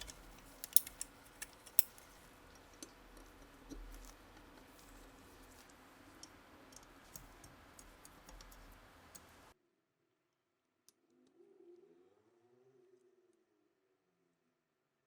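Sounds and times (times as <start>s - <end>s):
small clicks: 0.0s - 2.1s.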